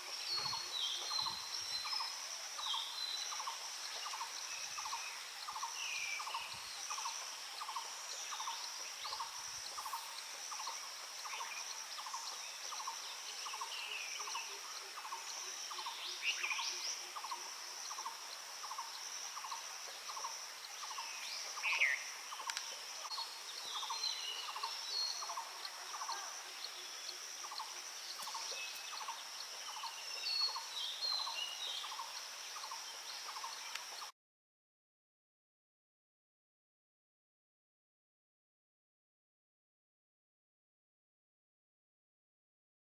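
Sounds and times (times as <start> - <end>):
birds chirping and calling: 0.0 - 34.1.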